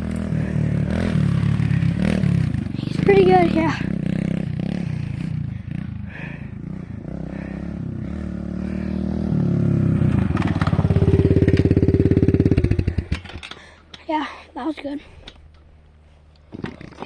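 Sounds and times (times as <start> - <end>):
dirt bike engine chugging: 0.0 - 14.7.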